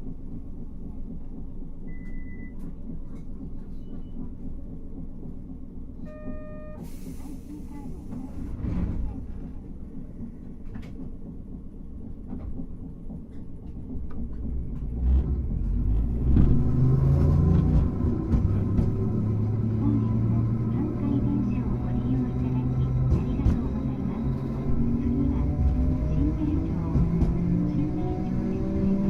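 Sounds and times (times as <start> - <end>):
tram motors and wheels rumbling: 0.0 - 29.0
short electronic beep: 6.0 - 6.9.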